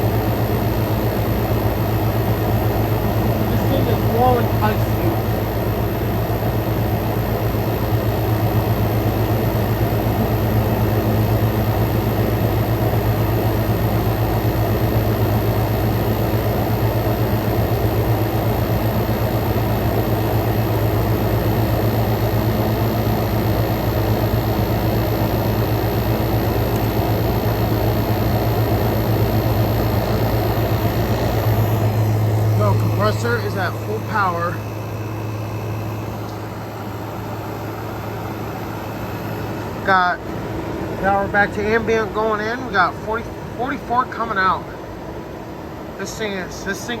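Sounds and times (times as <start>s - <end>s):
air conditioner hum: 0.0s - 47.0s
fan air rush: 0.0s - 47.0s.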